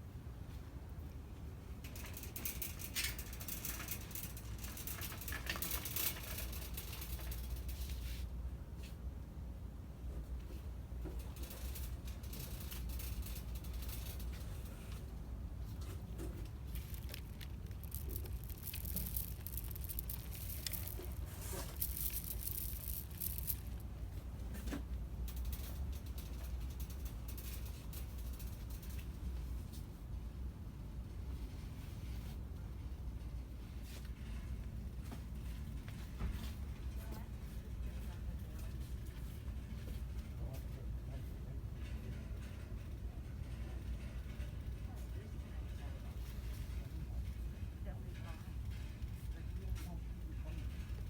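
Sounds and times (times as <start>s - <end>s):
steady low hum: 0.0s - 51.0s
rapid rattling and clicking: 1.8s - 8.2s, 11.0s - 29.3s.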